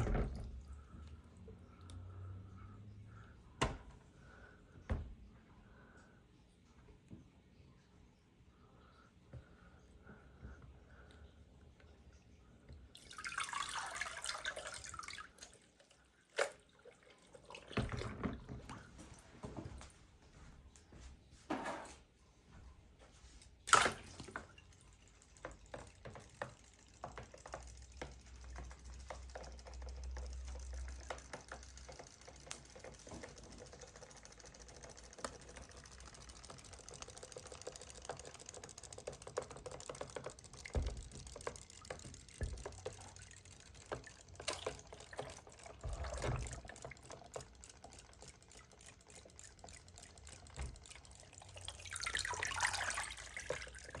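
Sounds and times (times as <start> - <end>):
toy car clicks and rattling: 24.8 - 45.6.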